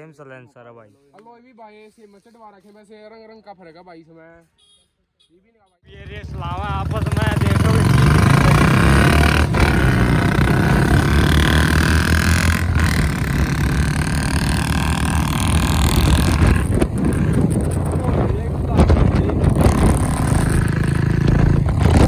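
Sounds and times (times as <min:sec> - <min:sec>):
motorcycle engines running: 0:05.9 - 0:22.0.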